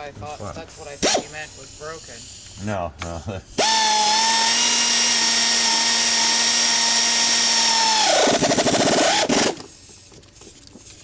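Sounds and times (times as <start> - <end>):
high-pitched power tool running: 3.6 - 9.9.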